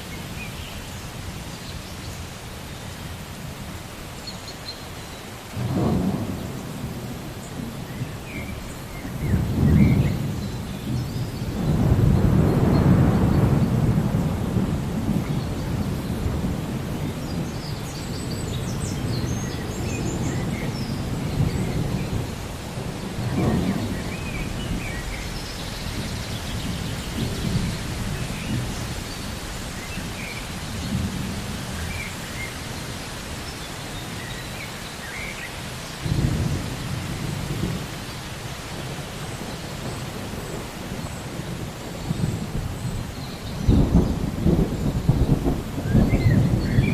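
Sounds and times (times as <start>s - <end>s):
rain falling: 0.0s - 46.9s
thunder rolling: 5.6s - 7.7s, 39.8s - 46.9s.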